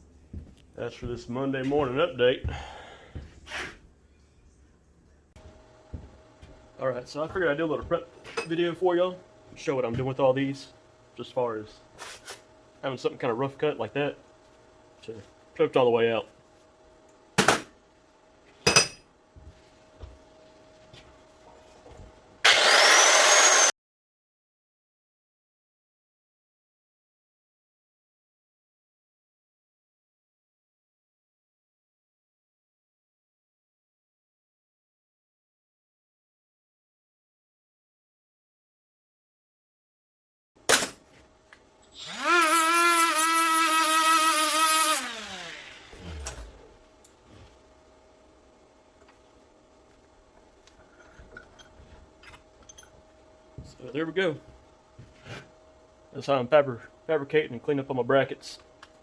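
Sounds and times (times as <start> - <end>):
faint handling knocks: 0.0 - 3.5
die grinder whining: 22.4 - 23.7, 41.9 - 46.8.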